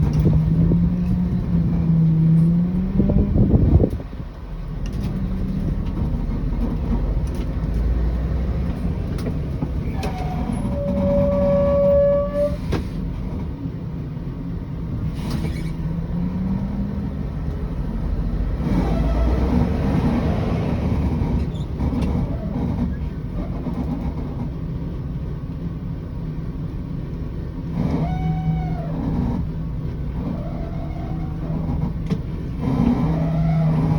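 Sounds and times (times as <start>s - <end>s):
bus diesel engine running: 0.0s - 33.9s.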